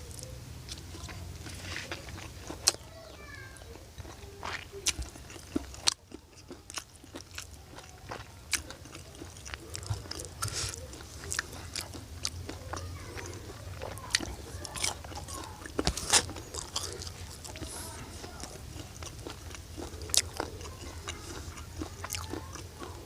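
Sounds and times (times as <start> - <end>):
person eating crunchy food: 0.0 - 23.0.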